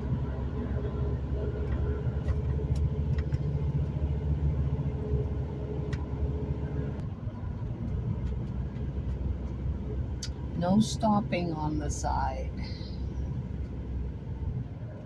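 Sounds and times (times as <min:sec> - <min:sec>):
vehicle rumble inside cabin: 0:00.0 - 0:15.0.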